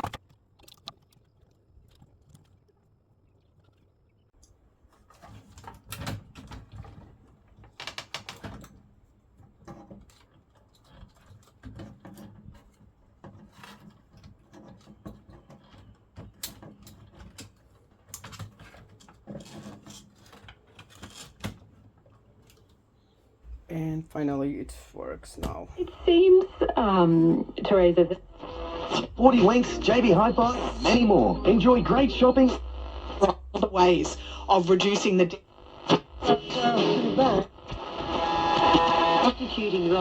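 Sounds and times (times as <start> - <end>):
hands clicking and scraping on radio: 5.1 - 8.8, 9.4 - 23.2, 25.5 - 40.0
faint low hum: 22.4 - 40.0.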